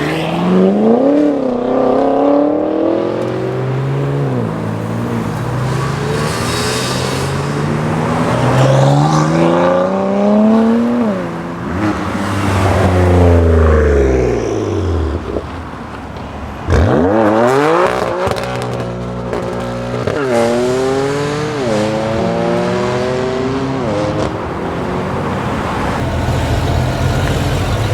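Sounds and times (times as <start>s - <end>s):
car engines revving: 0.0s - 27.9s
car passing by: 2.4s - 18.5s.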